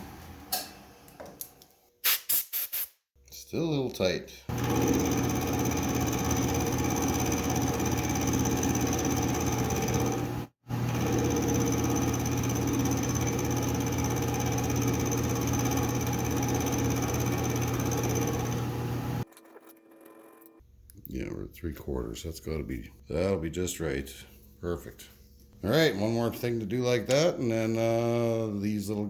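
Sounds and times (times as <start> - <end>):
metal lathe humming and whining: 4.5 - 19.2.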